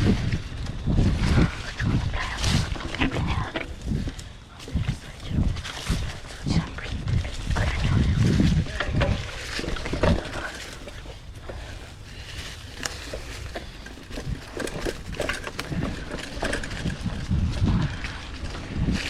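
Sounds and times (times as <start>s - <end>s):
mountain bike on dirt trail: 0.0s - 19.0s
bike chain and frame rattling: 8.8s - 18.6s.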